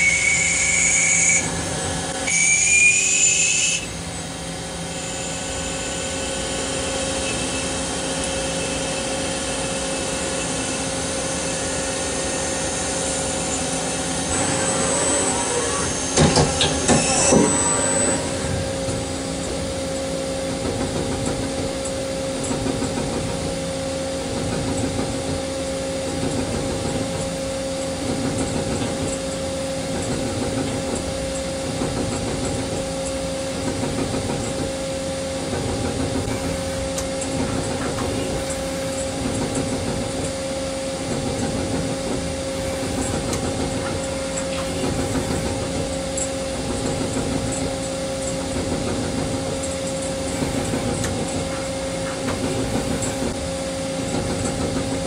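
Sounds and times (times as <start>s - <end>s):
lathe machine hum: 0.1s - 20.8s
lathe cutting noise: 4.5s - 19.4s.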